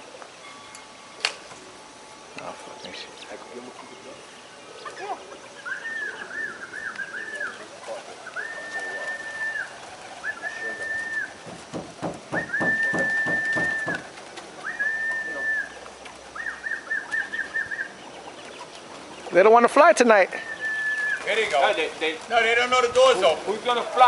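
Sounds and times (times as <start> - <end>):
pigeons cooing: 1.4 - 19.4, 20.3 - 24.0
wing flaps or thumps: 11.4 - 14.3
person whistling: 12.3 - 14.0.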